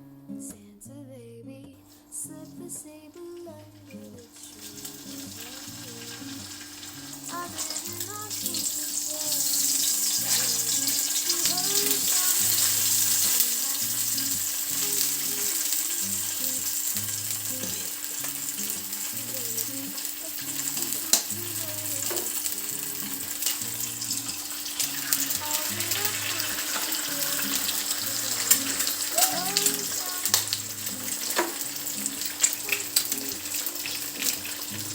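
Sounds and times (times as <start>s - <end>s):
food sizzling in a pan: 3.3s - 34.9s.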